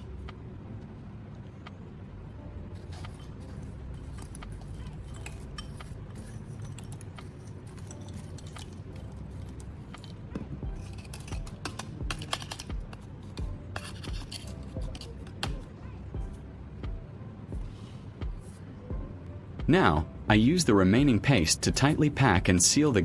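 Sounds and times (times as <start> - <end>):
low hum: 0.0 - 20.5
scraping and rubbing on metal: 2.7 - 15.8.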